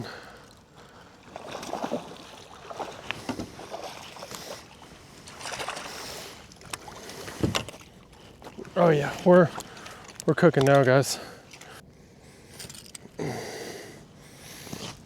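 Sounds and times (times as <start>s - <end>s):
water splashing against kayak: 0.2s - 10.8s.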